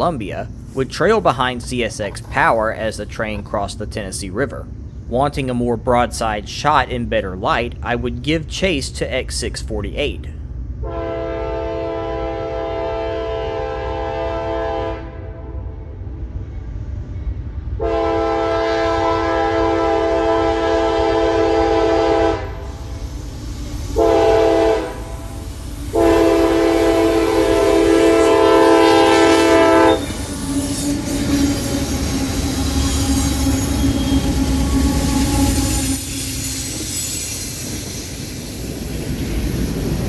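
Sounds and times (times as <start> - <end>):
train wheels rumbling on rails: 0.0 - 40.0
locomotive air horn blasts: 10.8 - 15.7, 17.8 - 22.7, 23.9 - 31.9.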